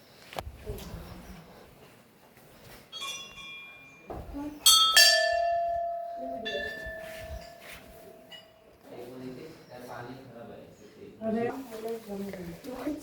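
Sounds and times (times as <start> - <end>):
metal temple bell ringing: 2.9 - 8.7.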